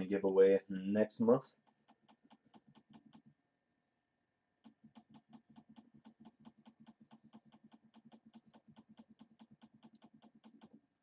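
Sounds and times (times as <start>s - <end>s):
mouse scroll wheel clicking: 1.5s - 3.4s, 4.6s - 10.8s.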